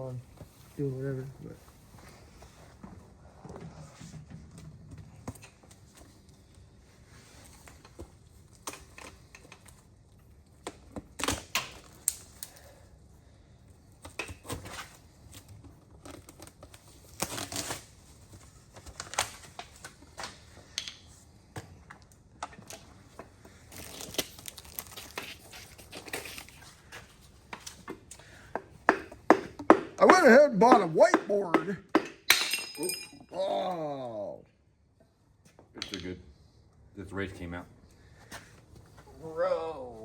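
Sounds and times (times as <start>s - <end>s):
metal tools and parts clattering: 32.3s - 33.3s.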